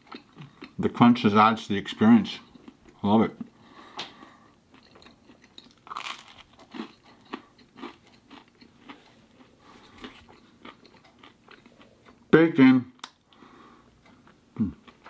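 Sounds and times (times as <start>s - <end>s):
crunchy chewing: 0.0s - 0.8s, 2.3s - 12.3s.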